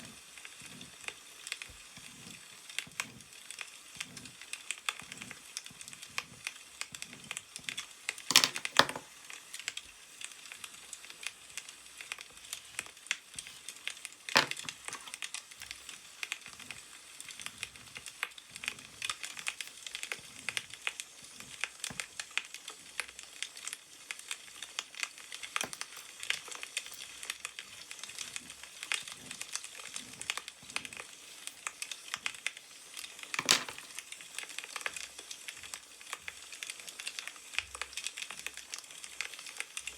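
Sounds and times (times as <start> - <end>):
wood fire crackling: 0.0 - 39.9
newspaper rustling: 13.4 - 17.4.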